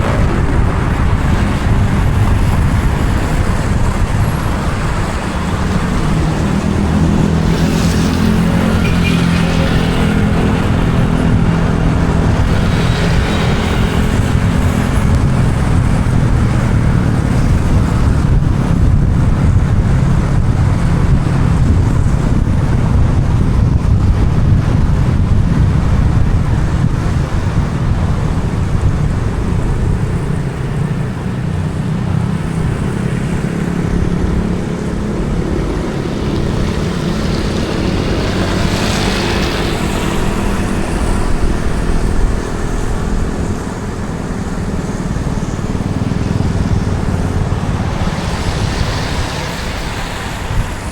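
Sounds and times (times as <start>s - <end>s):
car engine and tyre rumble: 0.0s - 50.9s
passing traffic: 0.0s - 50.9s.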